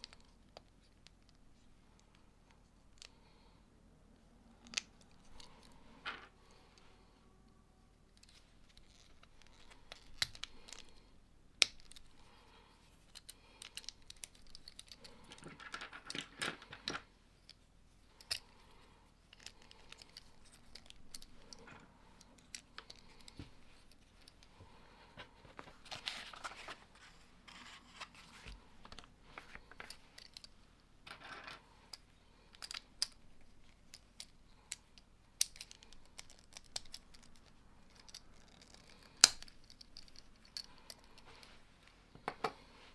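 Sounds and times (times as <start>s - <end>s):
pieces rustling: 4.6s - 6.8s, 8.1s - 34.8s
plastic bricks clicking together: 33.8s - 41.3s.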